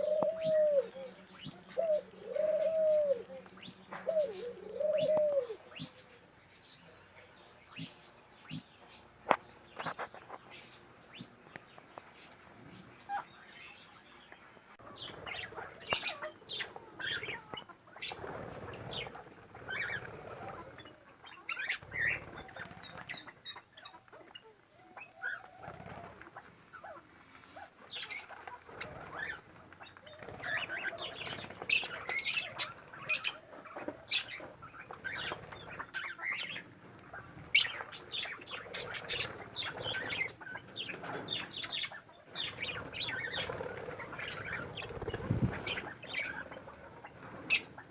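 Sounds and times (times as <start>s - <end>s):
birds flapping wings: 18.0s - 21.0s, 21.6s - 23.3s, 25.6s - 26.4s, 28.0s - 47.9s.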